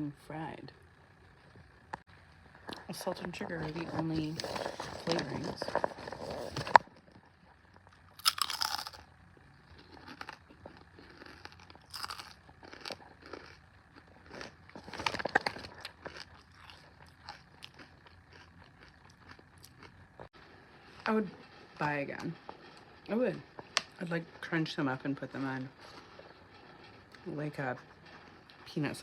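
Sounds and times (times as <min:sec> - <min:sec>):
person crunching crisps: 0:03.8 - 0:07.2, 0:07.9 - 0:21.6.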